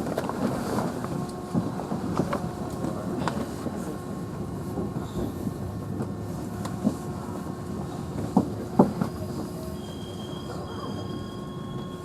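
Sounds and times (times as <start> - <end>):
train rumble: 0.0 - 12.0
train wheel squeal: 5.0 - 5.4, 8.9 - 12.0.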